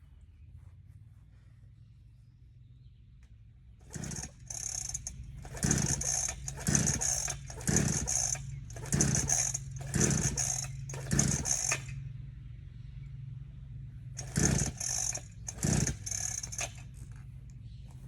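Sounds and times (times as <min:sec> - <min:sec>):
dirt bike engine cranking: 0:03.8 - 0:12.0, 0:14.2 - 0:18.0.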